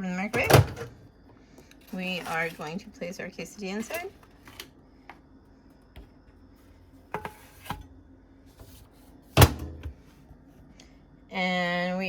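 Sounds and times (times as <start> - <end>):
microwave door slamming shut: 0.4 - 0.9, 9.4 - 9.9.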